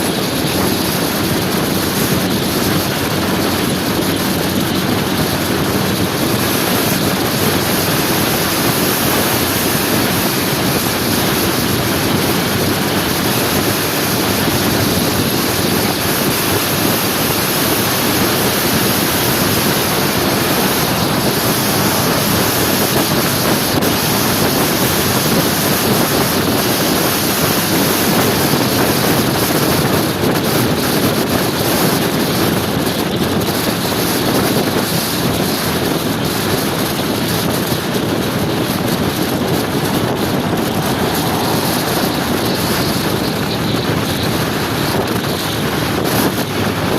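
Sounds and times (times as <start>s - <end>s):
scooter engine and road noise: 0.0s - 46.9s
wind rushing over microphone: 0.0s - 46.9s.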